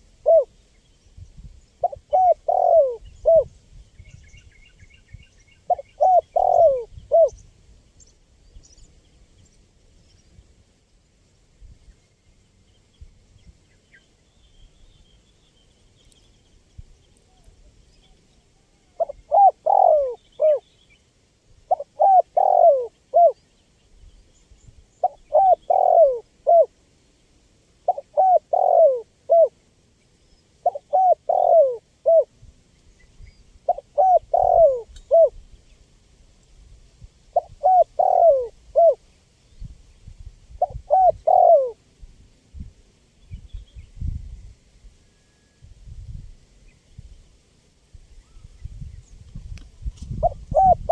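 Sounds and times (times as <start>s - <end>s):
dove cooing: 0.0s - 0.5s, 1.8s - 3.5s, 5.7s - 7.4s, 18.6s - 20.6s, 21.7s - 23.4s, 25.0s - 26.7s, 27.9s - 29.6s, 30.6s - 32.3s, 33.6s - 35.4s, 37.3s - 39.0s, 40.6s - 41.8s, 50.1s - 50.9s.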